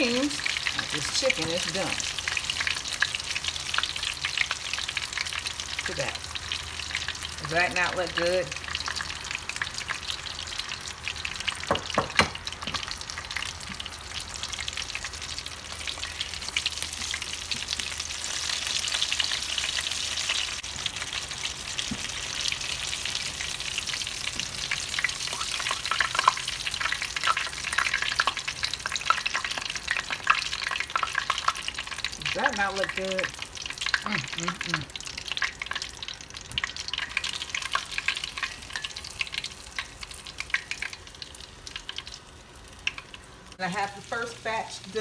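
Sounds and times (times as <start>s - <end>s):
chicken deep-frying in oil: 0.0s - 45.0s
sharp knocks: 11.7s - 12.4s.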